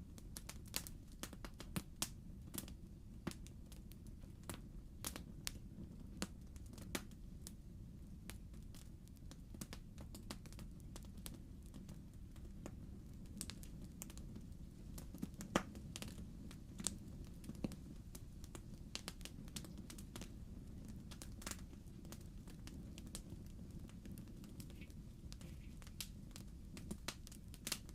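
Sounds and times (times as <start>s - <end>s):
wood fire crackling: 0.0s - 27.9s.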